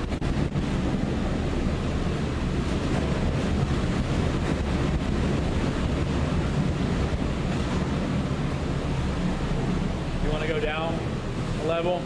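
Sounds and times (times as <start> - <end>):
hurricane wind buffeting microphone: 0.0 - 12.0.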